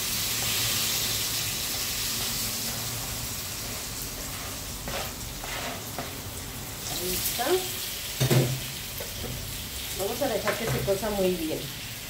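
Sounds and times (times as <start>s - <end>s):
tomatoes sizzling in butter: 0.0s - 12.0s.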